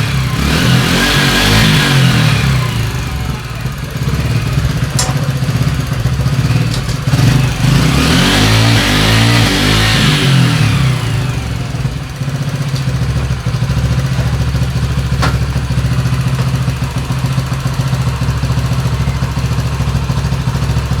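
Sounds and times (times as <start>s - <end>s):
motorcycle engine idling: 0.0s - 21.0s
sharp click: 4.9s - 5.7s.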